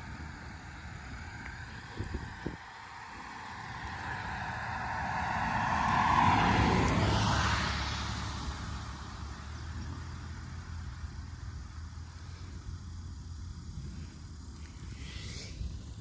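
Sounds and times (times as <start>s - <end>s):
steady low rumble: 0.0s - 16.0s
vehicle passing by: 0.5s - 12.6s.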